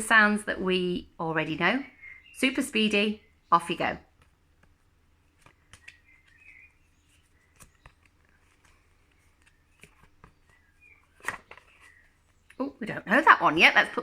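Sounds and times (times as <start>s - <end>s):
faint high chirps: 1.8s - 2.6s, 5.8s - 8.3s
flashcards tapping and flipping: 4.1s - 12.6s.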